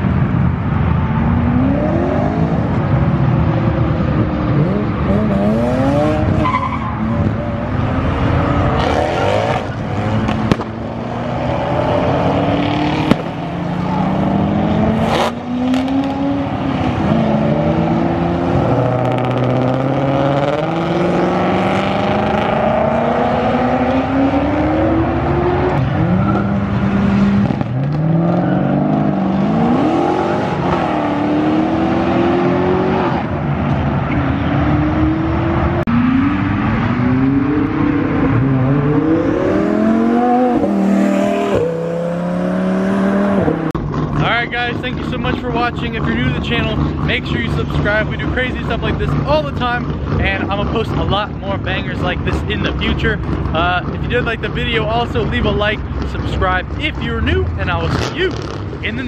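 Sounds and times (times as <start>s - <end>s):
cars accelerating hard: 0.0s - 59.0s
sharp crack: 10.2s - 10.8s, 12.9s - 13.4s.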